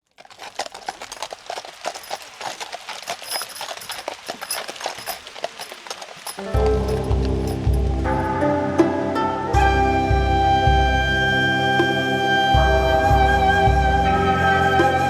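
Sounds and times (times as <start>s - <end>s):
horse hooves clip-clopping: 0.0s - 8.4s
music: 6.4s - 15.0s.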